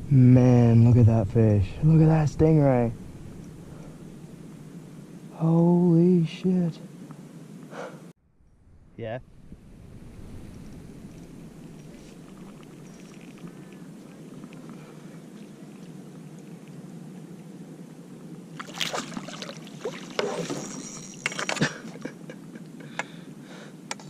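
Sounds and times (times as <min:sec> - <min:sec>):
wind: 0:00.0 - 0:24.0
water splashing beside kayak: 0:18.5 - 0:20.8.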